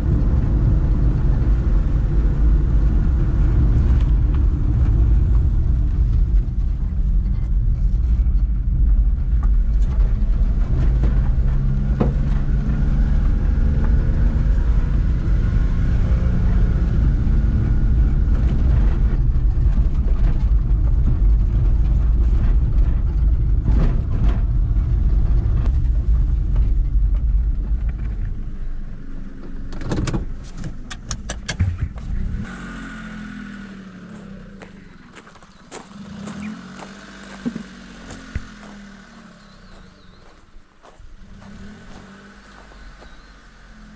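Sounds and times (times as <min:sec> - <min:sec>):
engine rumble: 0:00.0 - 0:43.9
sharp clicks and knocks: 0:29.7 - 0:32.2.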